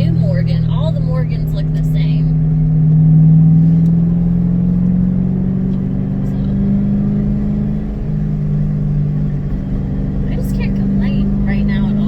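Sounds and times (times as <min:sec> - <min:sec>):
car engine droning inside cabin: 0:00.0 - 0:12.0.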